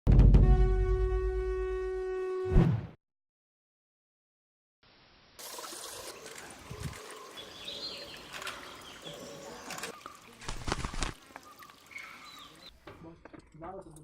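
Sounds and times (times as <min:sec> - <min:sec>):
bird chirps: 0:06.7 - 0:12.8.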